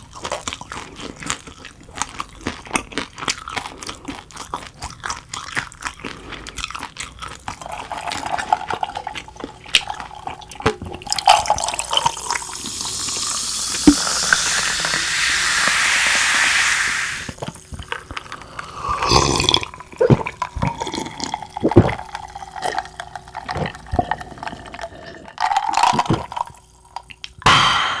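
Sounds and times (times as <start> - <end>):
person gulping drink: 7.0 - 16.4, 17.1 - 27.4
drink poured over ice hissing: 11.1 - 17.4.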